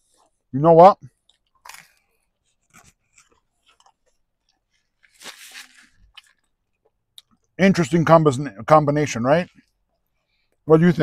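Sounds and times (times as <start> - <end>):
man chewing: 1.2 - 7.6
napkin rustling: 5.0 - 6.1.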